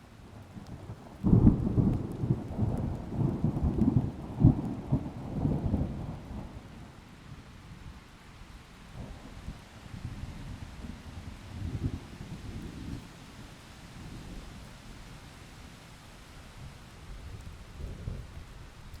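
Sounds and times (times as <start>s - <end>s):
rain: 0.0s - 19.0s
thunder rumbling: 1.2s - 6.3s.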